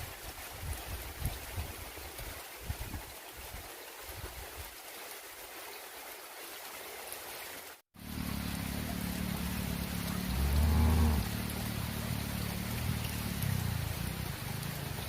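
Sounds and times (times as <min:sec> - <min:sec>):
heavy rain falling: 0:08.0 - 0:15.0.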